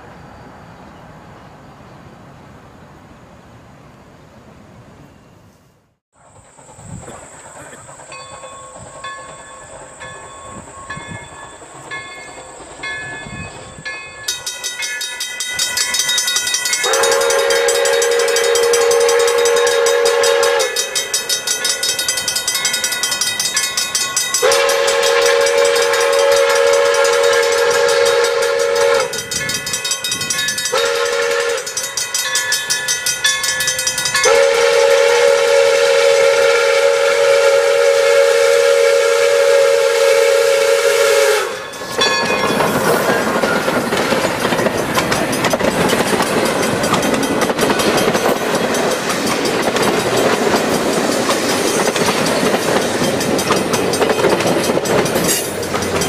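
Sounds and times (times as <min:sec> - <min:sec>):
steam locomotive whistle blasts: 0:15.8 - 0:32.8, 0:33.5 - 0:43.7.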